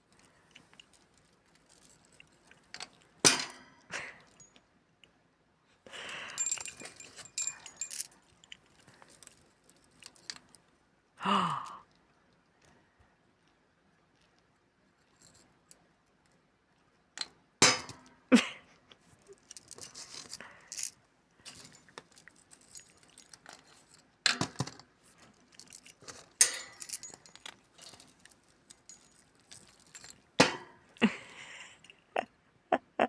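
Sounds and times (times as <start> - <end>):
light rattling and scraping: 0.0 - 3.2, 6.4 - 10.7, 19.0 - 31.0
sharp knocks and clinks: 6.4 - 8.1, 25.6 - 31.0.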